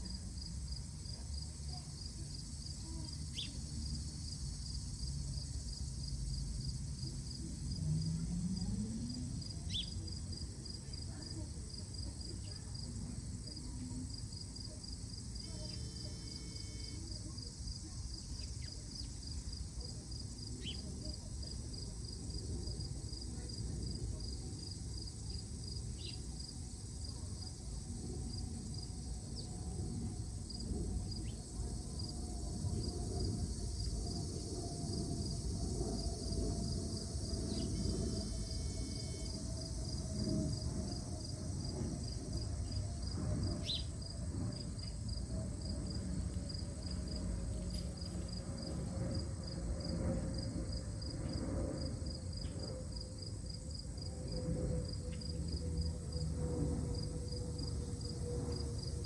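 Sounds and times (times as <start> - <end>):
insect chirping: 2.6 - 5.8, 9.7 - 10.2, 25.3 - 26.9, 30.4 - 50.4.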